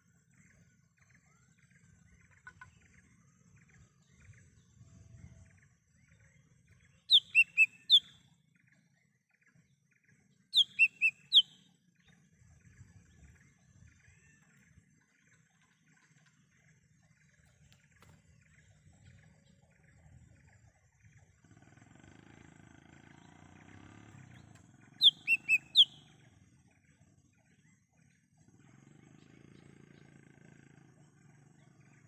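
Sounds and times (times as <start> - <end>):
faint bird twittering: 0.0 - 22.2, 23.0 - 32.0
leafbird whistled call: 7.1 - 8.2, 10.5 - 11.6, 25.0 - 26.1.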